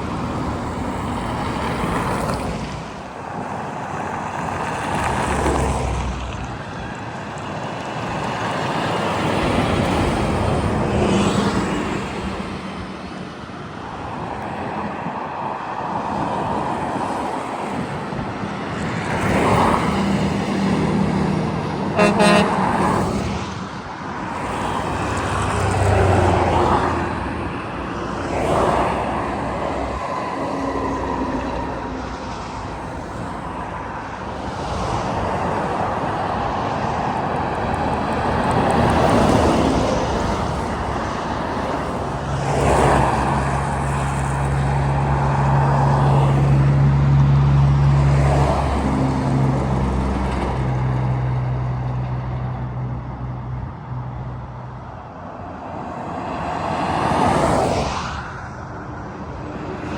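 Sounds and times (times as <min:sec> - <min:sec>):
vehicles passing: 0:00.0 - 0:59.9
heavy truck engine droning: 0:20.7 - 0:22.8.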